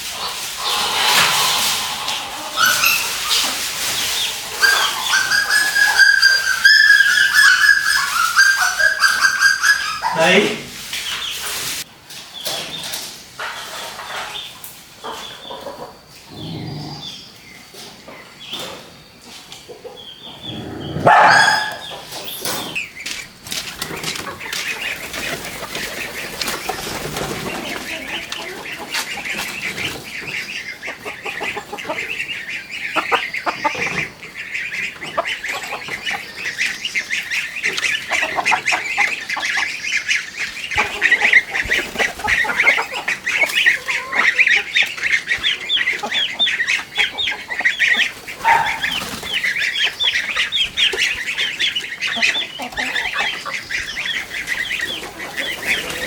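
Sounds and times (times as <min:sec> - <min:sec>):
poultry calling: 0:00.0 - 0:11.6, 0:19.8 - 0:56.0
loud rising bird call: 0:00.1 - 0:10.3.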